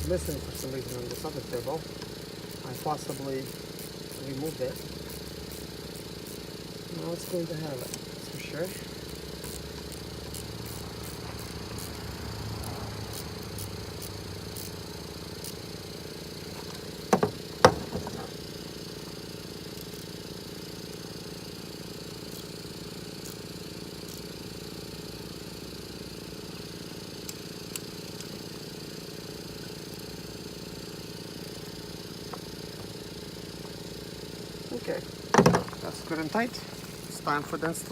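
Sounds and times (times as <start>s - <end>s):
steady mechanical hum: 0.0s - 37.9s.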